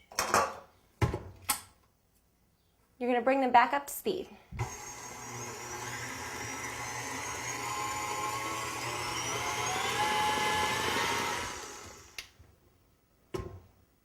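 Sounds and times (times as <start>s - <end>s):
stand mixer motor whine: 4.6s - 12.2s.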